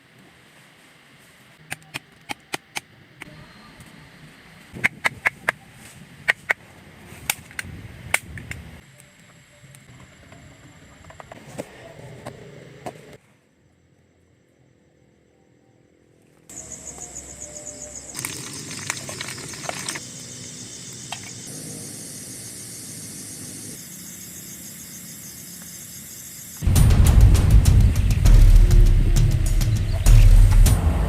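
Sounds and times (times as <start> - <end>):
insects chirping trill: 13.6 - 31.0.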